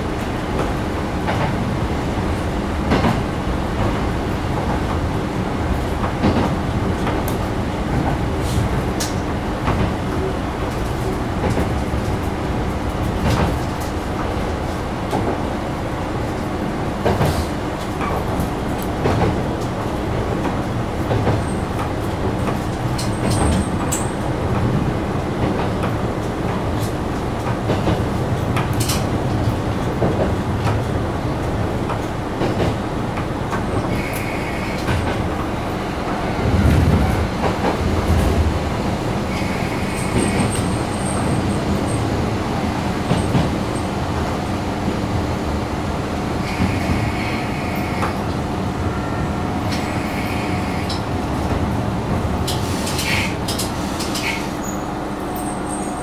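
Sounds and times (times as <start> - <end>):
train engine and wheel rumble: 0.0 - 56.0
high wheel squeals: 54.2 - 56.0.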